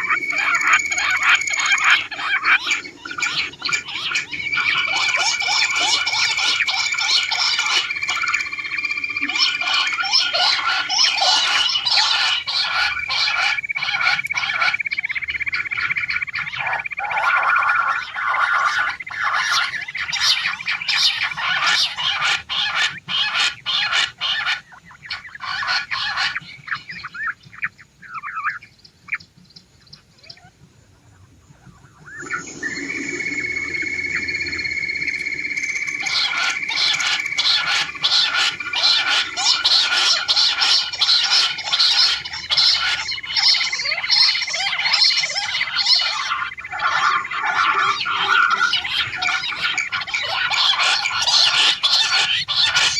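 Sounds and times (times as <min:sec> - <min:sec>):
steady high-pitched tone: 0:00.0 - 0:15.4, 0:32.0 - 0:52.9
quail calling: 0:00.0 - 0:52.9.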